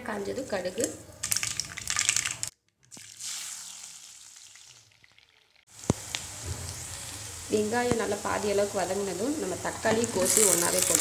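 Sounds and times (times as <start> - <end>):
seeds crackling in hot oil: 0.5 - 11.0
onions sizzling in oil: 5.7 - 11.0.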